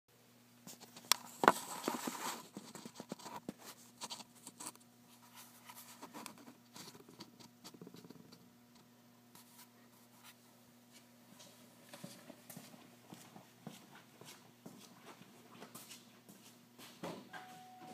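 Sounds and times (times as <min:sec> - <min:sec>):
faint low hum: 0:00.2 - 0:17.9
scraping and rustling handling noise: 0:00.7 - 0:08.5.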